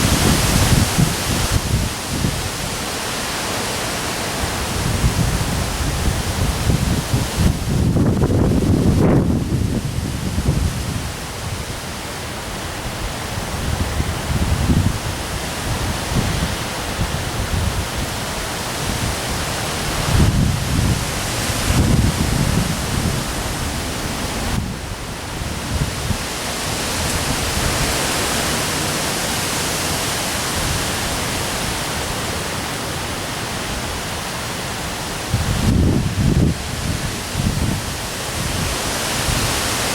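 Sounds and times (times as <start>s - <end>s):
heavy rain hissing: 0.0s - 39.9s
wind gusts buffeting microphone: 0.0s - 39.9s.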